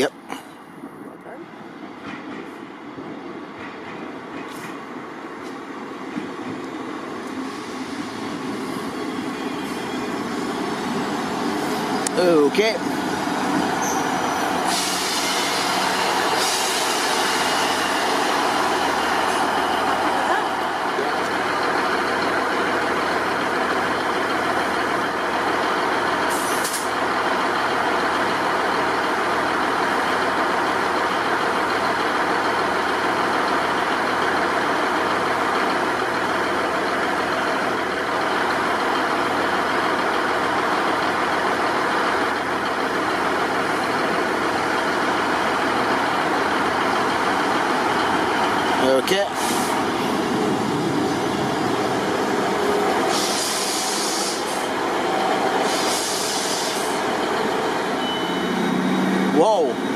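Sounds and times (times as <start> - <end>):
train diesel engine idling: 0.0 - 59.9
air hiss: 14.6 - 17.8, 26.3 - 26.9, 53.1 - 54.7, 55.6 - 57.0.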